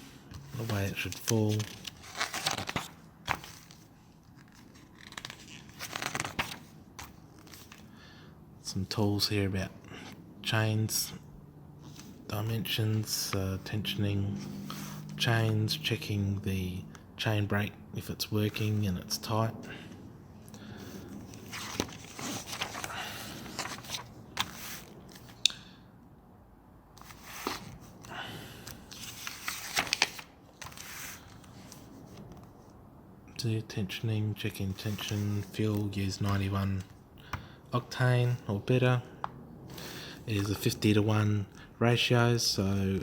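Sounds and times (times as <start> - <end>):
paper pages rustling and crackling: 0.1 - 7.9, 20.8 - 25.4, 27.0 - 32.5.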